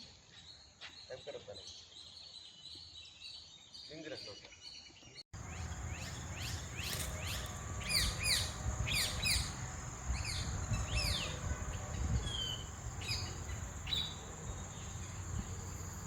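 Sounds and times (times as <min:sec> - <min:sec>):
small birds chirping: 0:00.3 - 0:16.0
high-pitched insect drone: 0:05.4 - 0:16.0.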